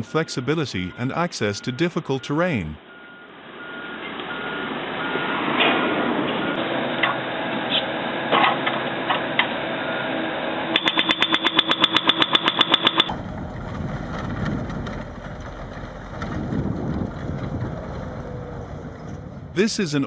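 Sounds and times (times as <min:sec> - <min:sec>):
heavy machinery engine running: 0:03.0 - 0:19.6
rapid high beeping: 0:10.8 - 0:13.1.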